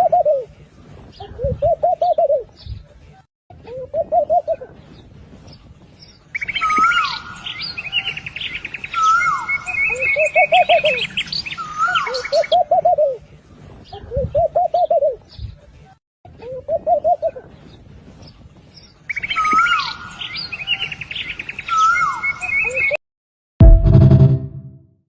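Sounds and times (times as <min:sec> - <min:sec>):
dove cooing: 0:00.0 - 0:00.5, 0:01.4 - 0:02.5, 0:09.9 - 0:11.2, 0:12.1 - 0:13.2, 0:16.5 - 0:17.5
birds chirping and trilling: 0:04.0 - 0:13.1, 0:18.7 - 0:23.0.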